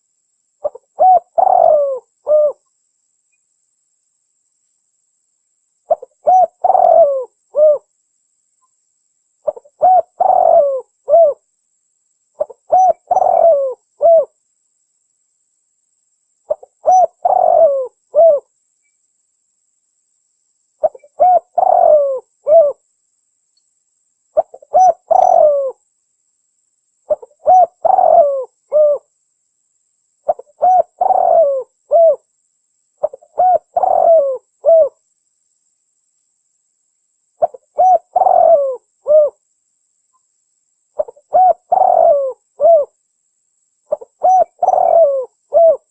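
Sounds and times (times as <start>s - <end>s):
dove cooing: 0.6s - 2.6s, 5.9s - 7.9s, 9.4s - 11.4s, 12.4s - 14.4s, 16.5s - 18.5s, 20.8s - 22.8s, 24.4s - 25.8s, 27.1s - 29.1s, 30.3s - 32.2s, 33.0s - 35.0s, 37.4s - 39.4s, 41.0s - 43.0s, 43.9s - 45.9s.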